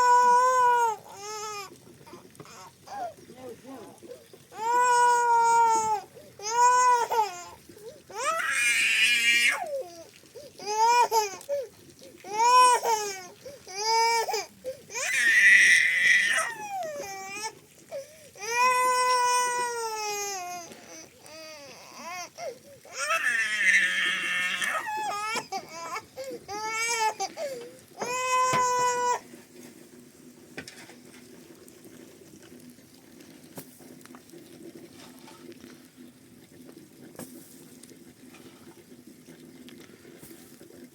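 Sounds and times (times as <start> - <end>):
baby crying: 0.0 - 3.2, 4.5 - 11.6, 12.3 - 17.6, 18.4 - 29.2
faint watery sound: 0.0 - 40.9
young child crying: 12.3 - 17.6, 28.0 - 29.2.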